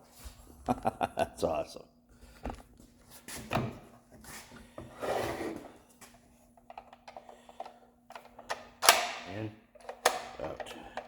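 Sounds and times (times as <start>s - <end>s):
parts sliding and rubbing: 2.5s - 6.2s.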